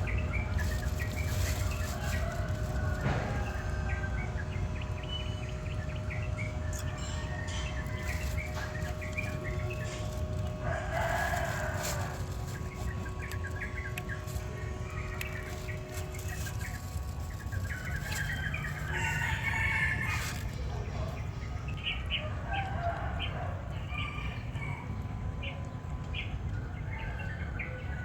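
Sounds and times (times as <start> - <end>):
rooster crowing: 1.7 - 4.3, 7.0 - 12.5, 17.7 - 20.6, 22.2 - 25.0.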